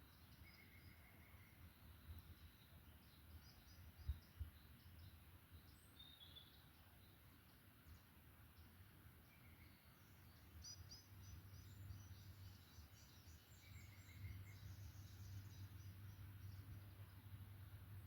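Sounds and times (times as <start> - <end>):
small birds chirping and trilling: 0.0 - 18.0
low steady rumble: 10.9 - 18.0.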